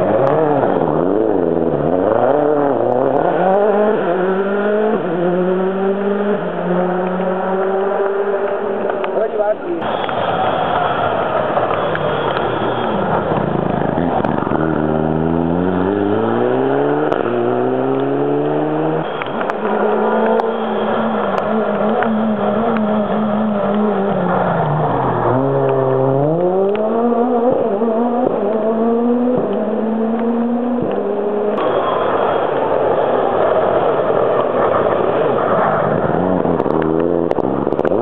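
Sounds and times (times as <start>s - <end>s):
racing car engine revving: 0.0s - 9.2s, 12.7s - 32.0s.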